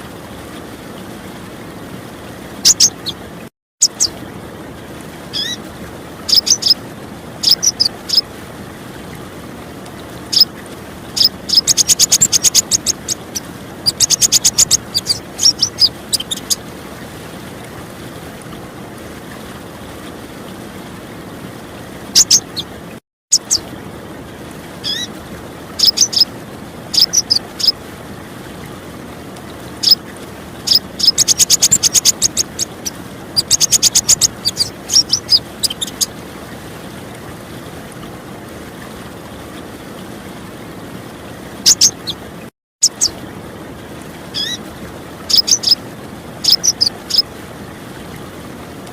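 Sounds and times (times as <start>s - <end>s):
running water rushing: 0.0s - 48.9s
bird chirps and rattling trills: 2.6s - 3.2s, 3.8s - 4.2s, 5.3s - 5.6s, 6.2s - 6.8s, 7.4s - 8.3s, 10.3s - 10.5s, 11.2s - 16.6s, 22.2s - 22.7s, 23.3s - 23.7s, 24.8s - 25.1s, 25.8s - 26.3s, 26.9s - 27.8s, 30.6s - 36.1s, 41.6s - 42.2s, 42.8s - 43.2s, 44.4s - 44.6s, 45.3s - 45.8s, 46.4s - 47.3s.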